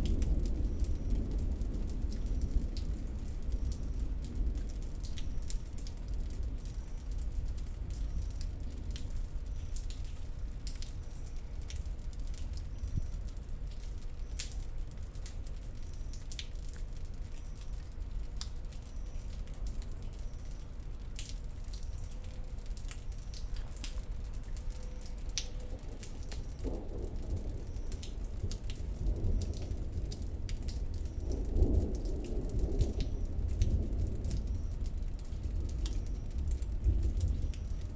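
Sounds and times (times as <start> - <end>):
thunder rumbling: 0.0 - 9.2, 25.4 - 37.9
rain falling: 0.0 - 37.9.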